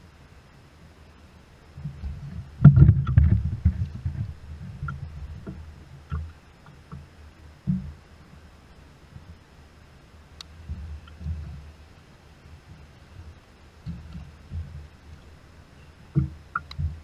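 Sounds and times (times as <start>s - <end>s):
heavy thumps: 1.8s - 6.3s
knocks and bumps on kayak: 1.8s - 6.3s, 7.7s - 8.0s, 12.7s - 14.9s, 16.1s - 17.0s.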